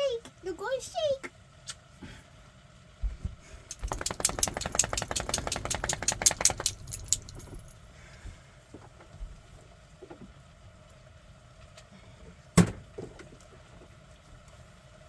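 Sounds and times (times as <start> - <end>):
dog shaking itself off: 3.7 - 7.8
collar tags jangling: 3.7 - 7.9.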